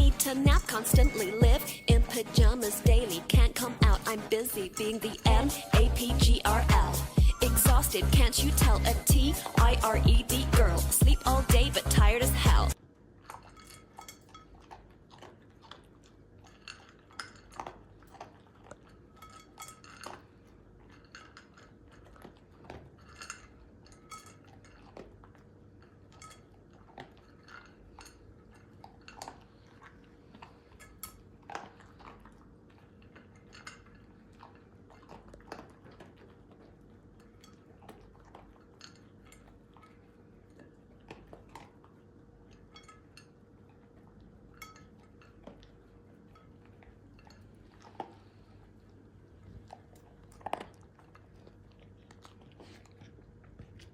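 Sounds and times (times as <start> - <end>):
faint steady hum: 0.0 - 53.9
small clicks and clinks: 13.3 - 14.8, 16.5 - 25.2, 25.8 - 29.5, 33.2 - 34.2, 42.5 - 43.4, 44.5 - 47.5.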